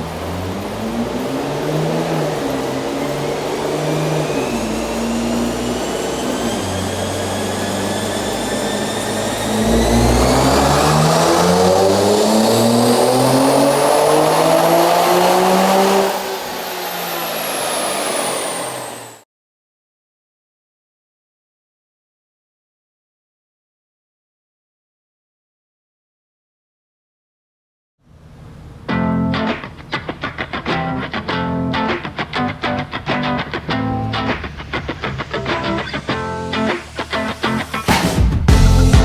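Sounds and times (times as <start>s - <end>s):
car engine revving: 0.0s - 19.2s, 28.1s - 39.0s
turbo whine: 0.0s - 19.2s, 28.5s - 39.0s.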